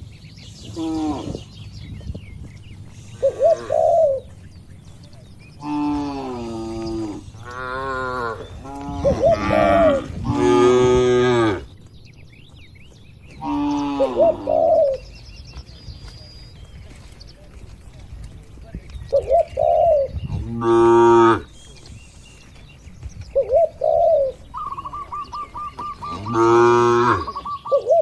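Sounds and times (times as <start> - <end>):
small birds chirping: 0.0 - 28.0
cattle mooing: 5.6 - 11.7, 26.1 - 27.4.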